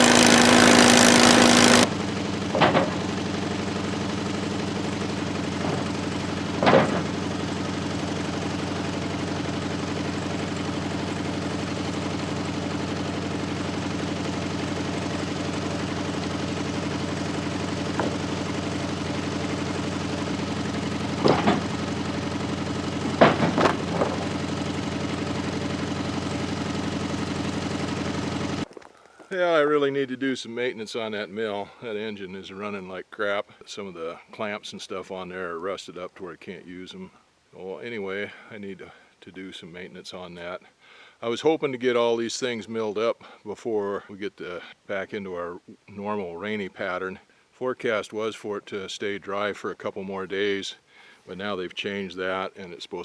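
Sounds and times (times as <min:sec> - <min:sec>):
gas engine running: 0:00.0 - 0:28.7
sharp knocks: 0:02.5 - 0:03.1, 0:06.6 - 0:07.2, 0:18.0 - 0:18.2, 0:21.2 - 0:21.8, 0:23.1 - 0:24.3.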